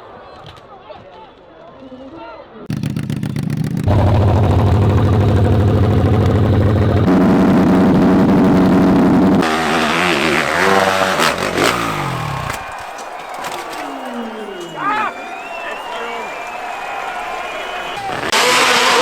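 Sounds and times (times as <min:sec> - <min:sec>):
dirt bike engine revving: 0:02.7 - 0:12.7, 0:17.9 - 0:19.0.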